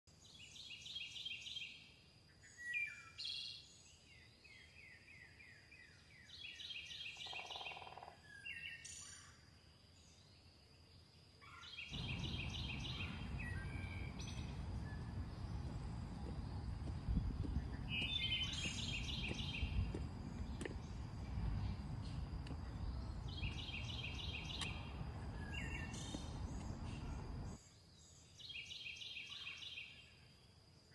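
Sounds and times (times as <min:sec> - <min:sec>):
songbirds singing: 0:00.1 - 0:09.4, 0:10.0 - 0:30.2
low rumbling outdoor noise: 0:11.8 - 0:27.6.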